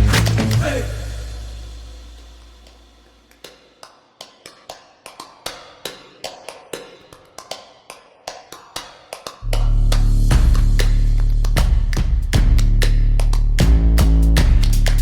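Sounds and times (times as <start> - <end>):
loud music: 0.0 - 2.4, 9.5 - 15.0.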